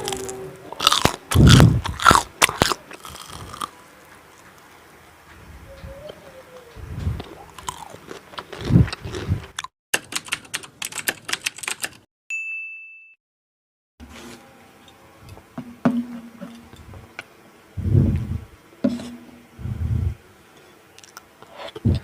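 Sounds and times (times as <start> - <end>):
chewing and mouth noises: 0.0 - 3.8, 6.6 - 9.7
bright ding: 12.3 - 13.2.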